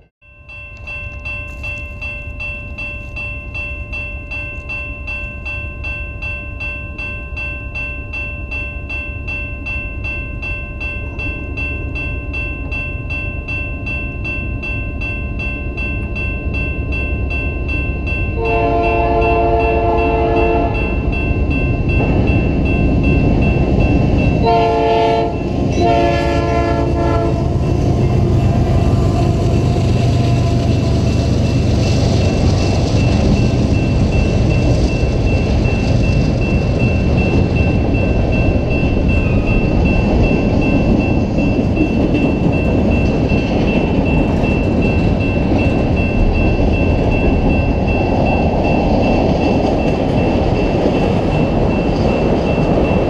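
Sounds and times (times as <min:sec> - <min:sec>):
locomotive horn blasts: 0:18.4 - 0:20.9, 0:24.4 - 0:27.7, 0:29.0 - 0:31.0
train wheels clattering over rails: 0:26.7 - 0:53.0.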